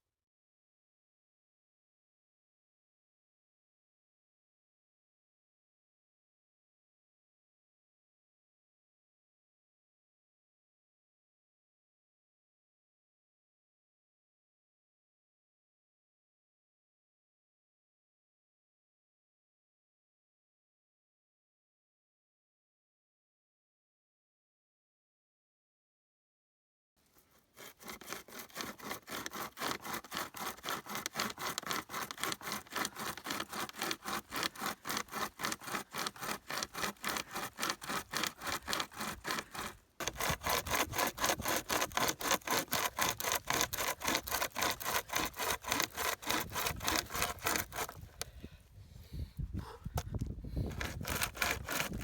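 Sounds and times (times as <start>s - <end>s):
hand saw cutting wood: 27.1s - 48.5s, 49.6s - 52.0s.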